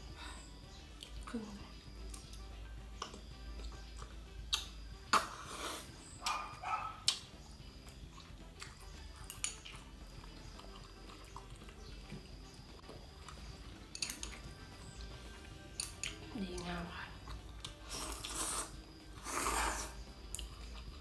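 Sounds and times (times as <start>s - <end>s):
dog barking: 6.2s - 7.1s.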